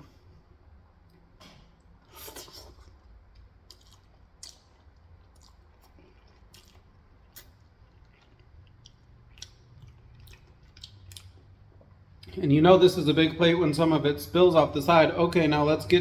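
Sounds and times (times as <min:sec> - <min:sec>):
wet chewing of noodles: 0:01.7 - 0:12.3.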